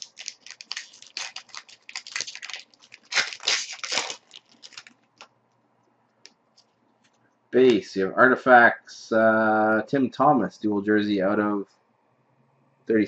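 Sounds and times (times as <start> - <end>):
cards and packaging rustling: 0.0 - 5.3.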